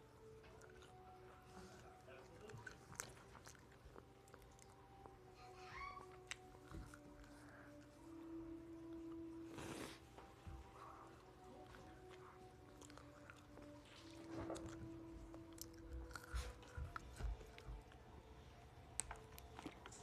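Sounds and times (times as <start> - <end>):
chewing and biting food: 0.2 - 7.9, 11.2 - 18.1, 18.9 - 20.0.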